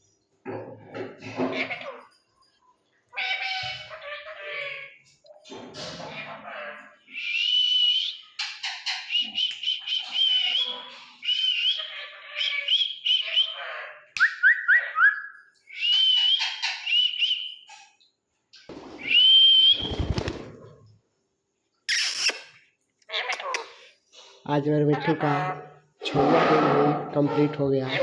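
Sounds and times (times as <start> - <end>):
parrot whistling calls: 19.0 - 20.3, 21.9 - 22.6
parrot rising chirps: 21.9 - 22.6.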